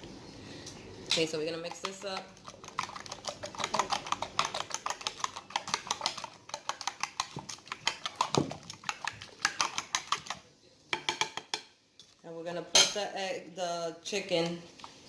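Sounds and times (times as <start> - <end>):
spoon beating eggs in a bowl: 1.1 - 12.2.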